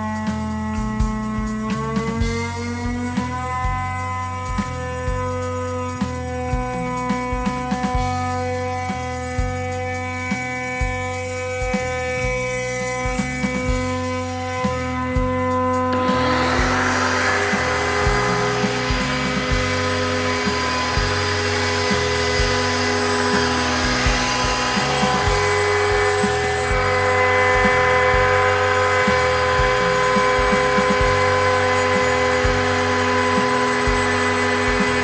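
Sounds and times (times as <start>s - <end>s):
background music: 0.0s - 35.0s
router spindle whine: 0.0s - 35.0s
stepper motors moving: 13.8s - 35.0s.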